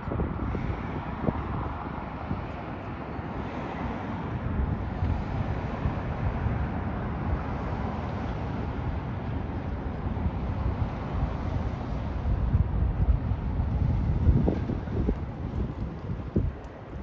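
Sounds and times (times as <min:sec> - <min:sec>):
road noise: 0:00.0 - 0:17.0
wind buffeting microphone: 0:00.0 - 0:17.0.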